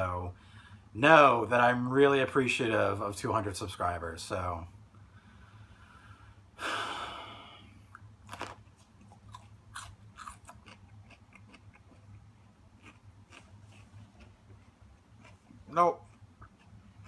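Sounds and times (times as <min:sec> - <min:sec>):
breathy burst: 0:05.1 - 0:07.8
crunchy chewing: 0:07.9 - 0:17.0.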